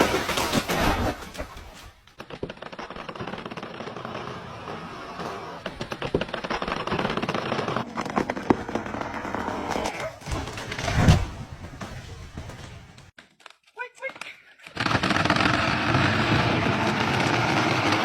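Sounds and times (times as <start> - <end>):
wood cracking and snapping: 0.0 - 3.7.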